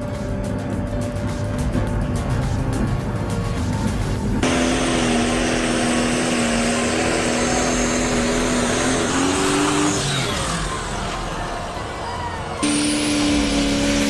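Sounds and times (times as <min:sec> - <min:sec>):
loud mechanical noise: 0:02.7 - 0:14.0
vehicle engine at high revs: 0:04.4 - 0:11.7, 0:12.5 - 0:14.0.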